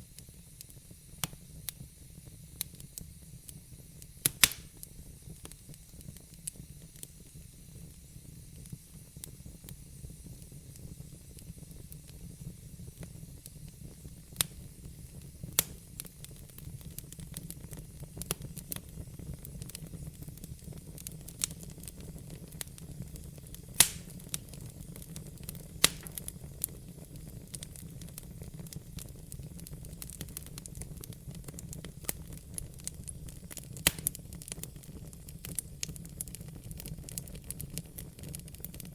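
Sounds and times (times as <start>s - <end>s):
wood fire burning: 0.0s - 38.9s
logs crackling and popping: 4.2s - 7.1s, 14.3s - 38.9s.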